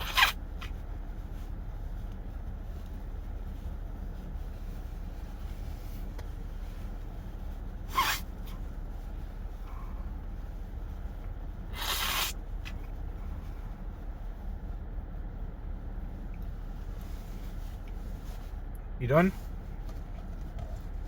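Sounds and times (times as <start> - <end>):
short noisy swishes: 0.0 - 0.8, 4.7 - 10.3, 11.6 - 13.5
steady low hum: 0.0 - 21.0.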